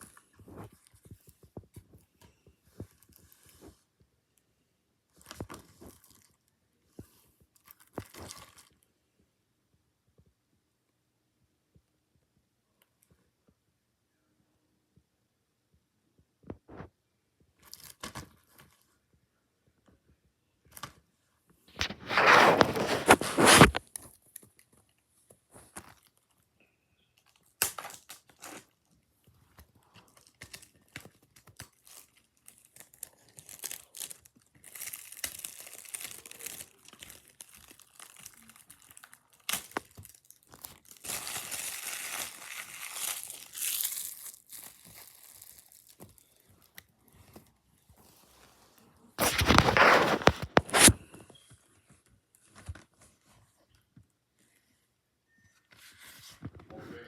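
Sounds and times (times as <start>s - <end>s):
packaging crinkling and tearing: 7.6s - 8.8s, 21.8s - 24.0s, 30.1s - 46.8s, 49.2s - 51.1s.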